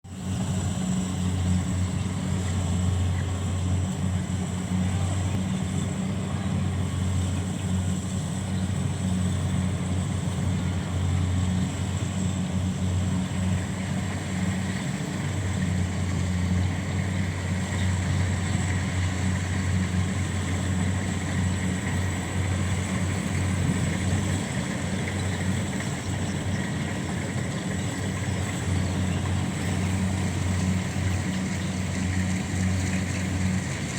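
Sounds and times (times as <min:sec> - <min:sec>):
harvester engine droning: 0:00.1 - 0:33.9.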